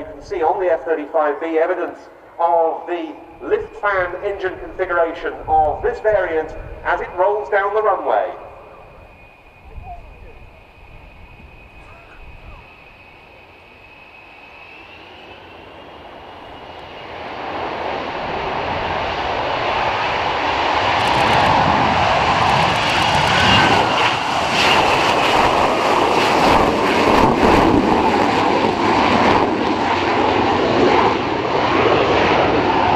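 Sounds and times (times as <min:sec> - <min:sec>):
fighter jet taking off: 0:00.0 - 0:32.9.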